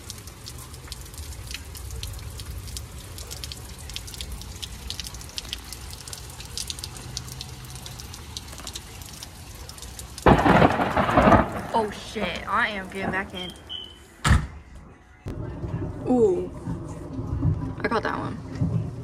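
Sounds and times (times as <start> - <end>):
raindrops ticking and dripping: 0.0 - 14.1
steady low rumble: 15.3 - 19.0.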